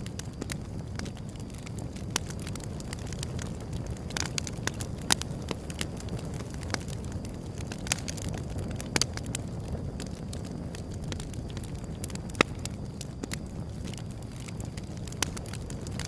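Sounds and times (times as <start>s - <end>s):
burning wood crackles and pops: 0.0s - 16.0s
low rumble of fire: 0.0s - 16.0s.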